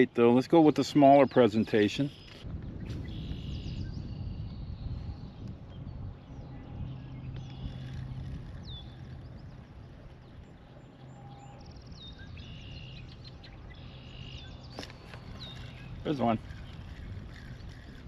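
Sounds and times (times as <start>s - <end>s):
birds whistling and chirping: 0.0s - 18.0s.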